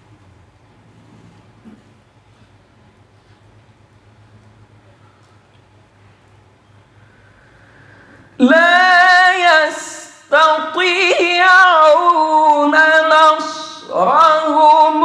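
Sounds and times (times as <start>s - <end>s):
man breathing: 6.9s - 8.4s.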